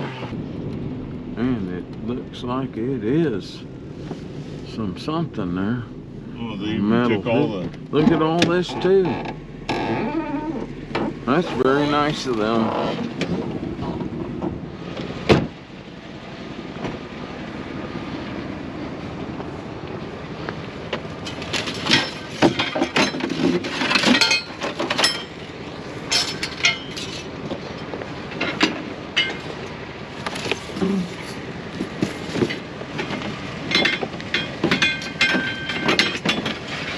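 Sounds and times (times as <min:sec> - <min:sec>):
steady rumble: 0:00.0 - 0:36.9
junk clinks and knocks: 0:20.9 - 0:36.9.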